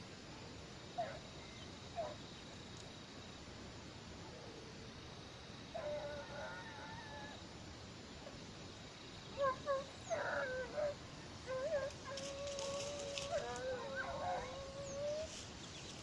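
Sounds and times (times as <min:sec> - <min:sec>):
dogs yelping: 0:09.4 - 0:15.4
hunting dogs baying: 0:09.4 - 0:15.4.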